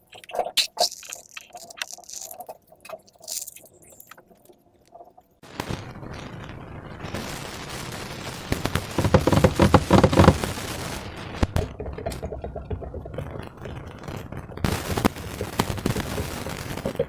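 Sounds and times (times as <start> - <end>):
slime crackling and popping: 0.0 - 6.2.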